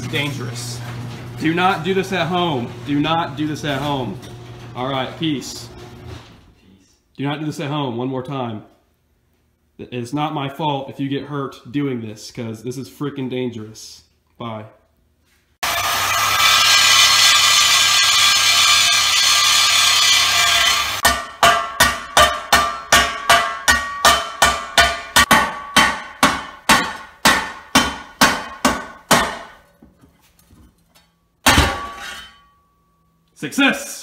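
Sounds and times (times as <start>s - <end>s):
grating metal noise: 15.6s - 29.6s.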